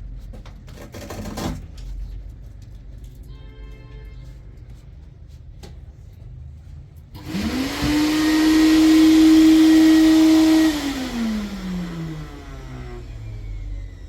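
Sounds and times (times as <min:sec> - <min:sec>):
vacuum cleaner motor whine: 0:07.2 - 0:14.0.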